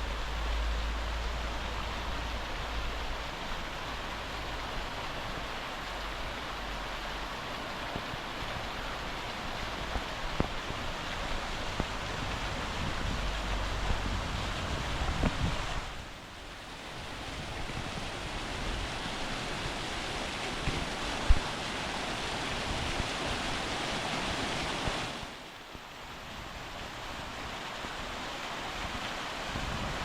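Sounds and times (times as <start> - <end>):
waterfall rushing: 0.0 - 30.0
wind on microphone: 7.9 - 25.3, 28.8 - 30.0.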